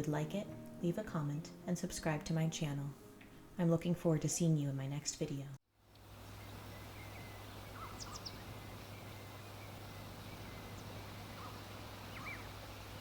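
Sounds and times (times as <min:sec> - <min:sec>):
steady low hum: 0:06.0 - 0:13.0
faint bird chirps: 0:06.4 - 0:13.0.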